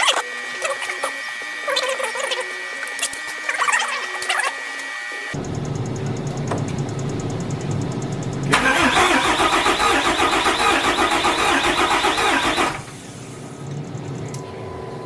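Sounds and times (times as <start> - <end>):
steady hum: 0.0 - 15.0
diesel starter cranking: 5.4 - 13.2.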